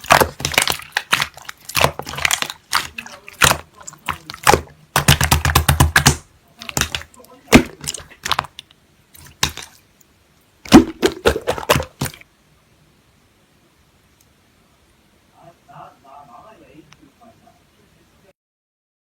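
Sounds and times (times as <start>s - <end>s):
slime squeezed crackling: 0.0s - 10.1s, 10.7s - 12.2s.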